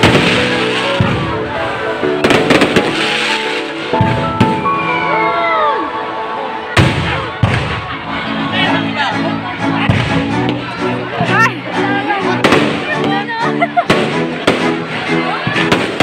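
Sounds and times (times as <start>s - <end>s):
fireworks bursting bangs: 0.0s - 4.9s, 6.8s - 8.0s, 9.8s - 10.7s, 12.4s - 13.2s, 13.8s - 16.0s
background music: 0.0s - 16.0s.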